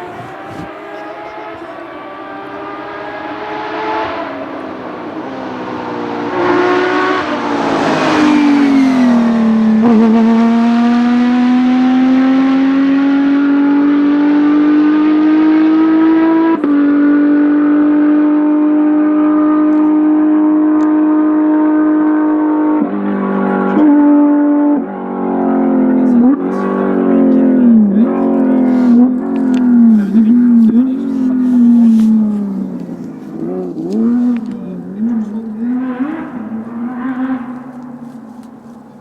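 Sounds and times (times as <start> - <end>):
rally car engine and exhaust: 0.0 - 39.0.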